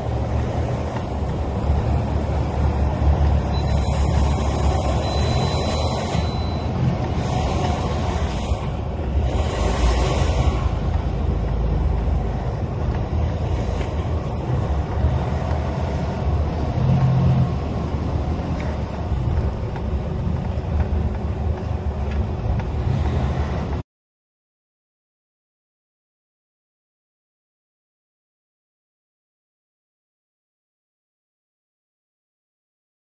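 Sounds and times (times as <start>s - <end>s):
heavy traffic rumble: 0.0s - 23.8s.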